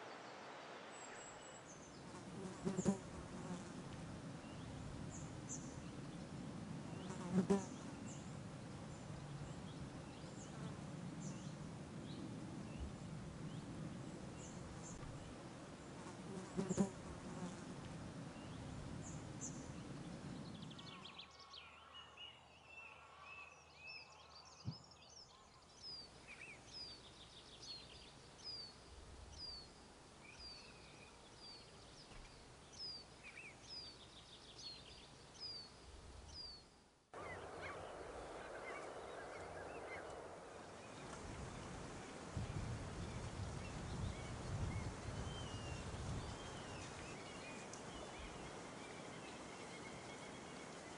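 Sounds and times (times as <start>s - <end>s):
insects buzzing: 2.0s - 6.3s, 6.9s - 8.3s, 15.8s - 20.4s
small birds chirping: 23.6s - 50.9s.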